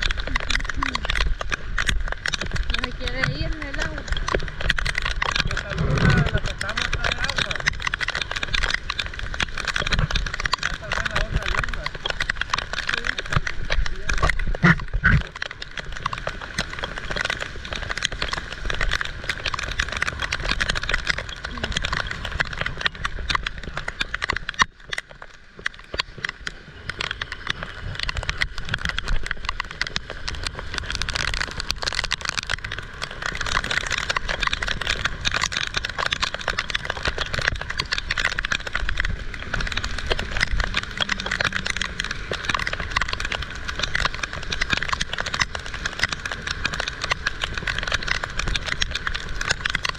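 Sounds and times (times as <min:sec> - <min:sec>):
low rumble: 0:00.0 - 0:23.9, 0:30.4 - 0:45.6
heavy rain falling: 0:00.0 - 0:49.9.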